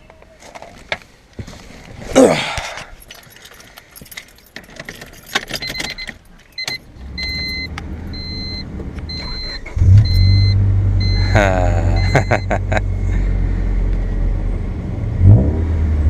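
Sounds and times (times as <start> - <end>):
keys jangling: 2.7 - 6.9
car engine starting: 4.6 - 16.0
car electronic chime beeping: 5.6 - 13.0.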